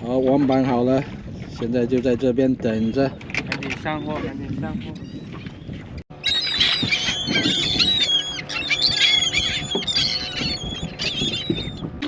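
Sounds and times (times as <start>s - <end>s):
flock of birds chirping: 3.6s - 12.0s.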